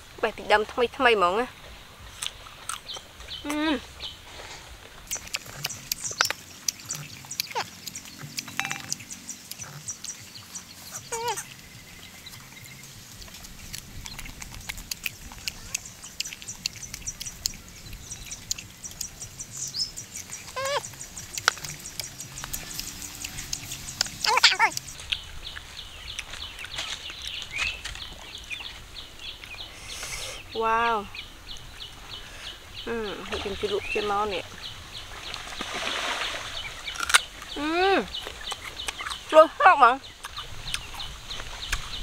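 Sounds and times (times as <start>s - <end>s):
crunching and chewing mango: 2.0s - 29.6s, 36.8s - 39.4s, 40.1s - 42.0s.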